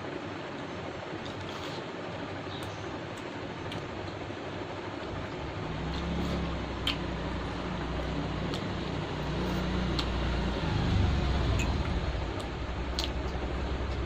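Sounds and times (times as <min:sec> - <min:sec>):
steady background hum: 0:00.0 - 0:14.0
person chewing food: 0:05.8 - 0:10.2, 0:12.3 - 0:14.0.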